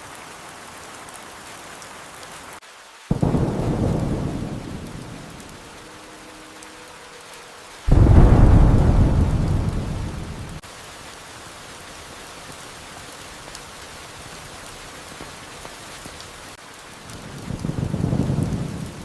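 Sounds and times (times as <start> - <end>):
steady rain: 0.0 - 19.0
thunder clap and rumble: 3.1 - 5.8, 7.9 - 10.6, 17.2 - 19.0.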